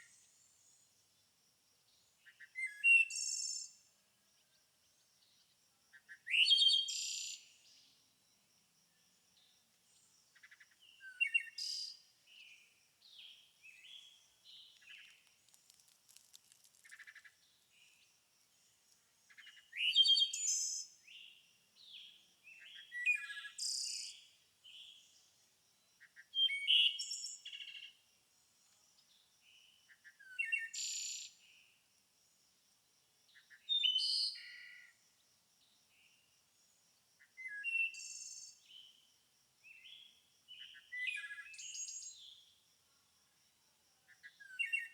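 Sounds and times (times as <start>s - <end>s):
soft bird chirps: 10.0s - 18.1s, 44.2s - 44.9s.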